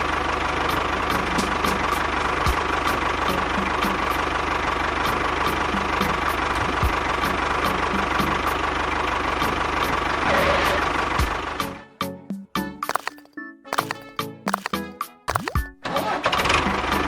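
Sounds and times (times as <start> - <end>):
light regular ticking: 12.9 - 15.7.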